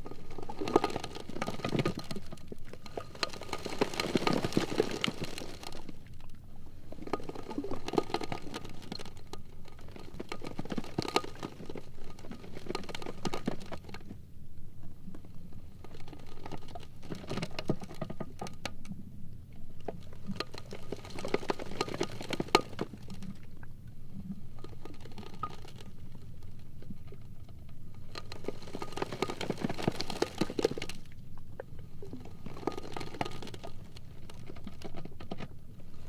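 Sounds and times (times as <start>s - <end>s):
ice floes grinding: 0.0s - 6.0s, 28.2s - 31.1s.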